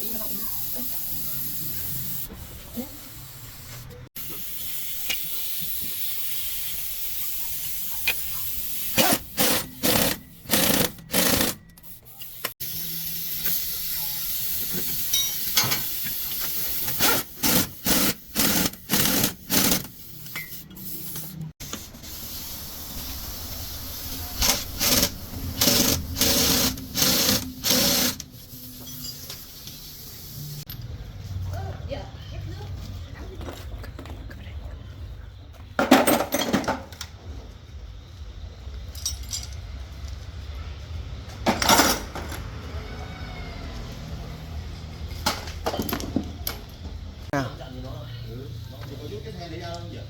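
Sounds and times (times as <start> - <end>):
compressed-air tool bursts: 8.0 - 11.6, 12.2 - 30.4
steady air hiss: 19.6 - 30.7.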